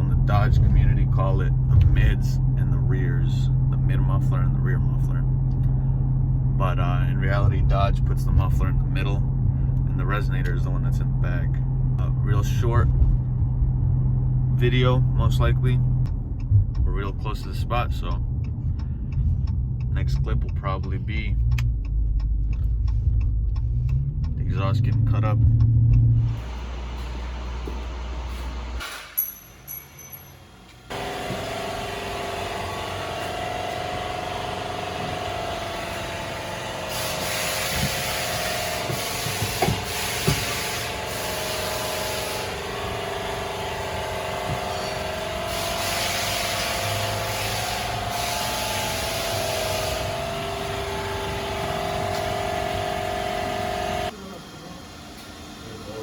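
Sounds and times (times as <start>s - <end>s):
power cutting tool whining: 30.9s - 56.0s
hiss: 36.9s - 42.7s, 44.7s - 50.7s.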